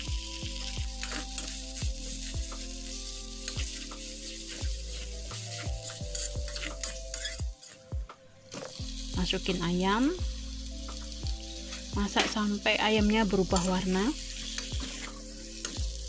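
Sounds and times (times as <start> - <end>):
paste sizzling in hot oil: 0.0 - 16.0
metal spatula scraping a pan: 0.8 - 7.9, 13.3 - 15.9.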